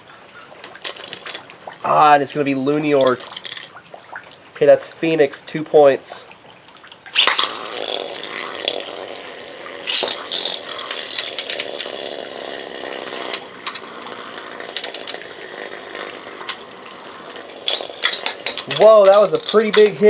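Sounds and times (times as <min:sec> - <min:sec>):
spinning tops clacking: 0:02.9 - 0:03.7, 0:07.2 - 0:20.0
spinning tops whirring and grinding: 0:02.9 - 0:03.7, 0:07.2 - 0:20.0.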